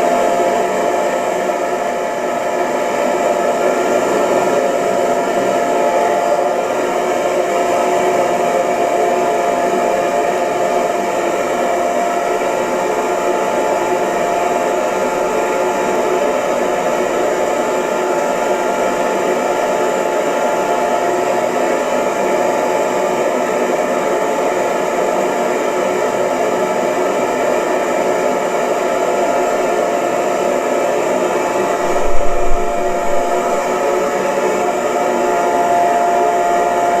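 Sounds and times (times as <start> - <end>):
hair dryer running: 0.0 - 37.0
low thump: 31.9 - 33.7.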